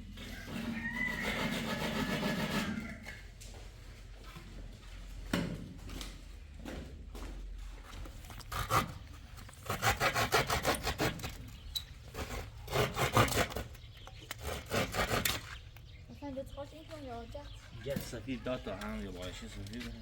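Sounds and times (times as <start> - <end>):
hand saw cutting wood: 0.0 - 3.1, 8.4 - 15.6.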